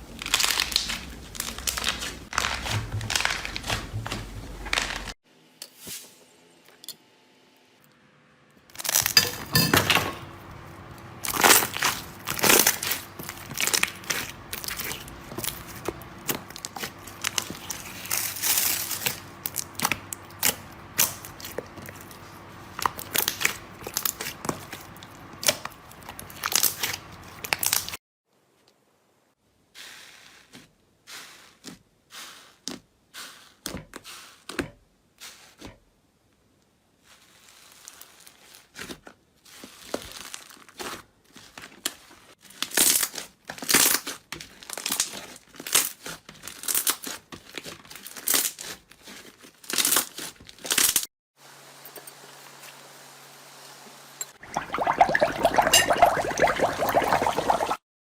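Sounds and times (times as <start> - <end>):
slime crackling and popping: 0.1 - 3.8.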